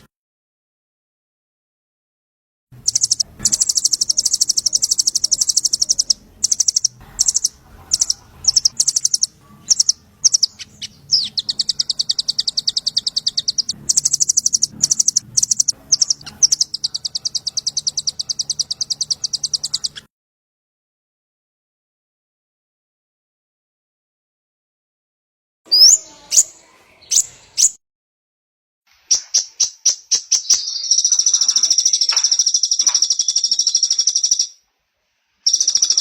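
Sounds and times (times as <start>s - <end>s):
bird chips: 2.8s - 20.1s, 29.0s - 34.6s, 35.4s - 36.0s
songbird trilling: 2.8s - 20.1s.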